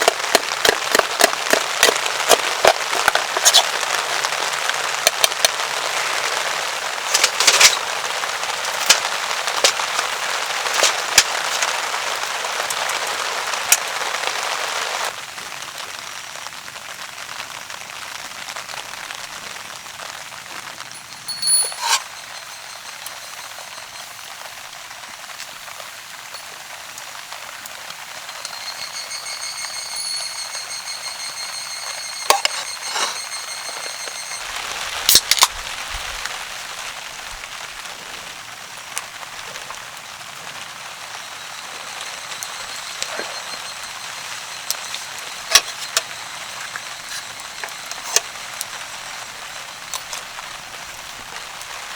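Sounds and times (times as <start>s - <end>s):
rain pattering on a tarp: 0.0s - 21.3s, 22.6s - 30.1s, 34.4s - 51.9s
heavy raindrops striking: 0.0s - 51.9s
high steady tone: 21.0s - 24.8s, 28.1s - 34.6s, 41.4s - 50.2s.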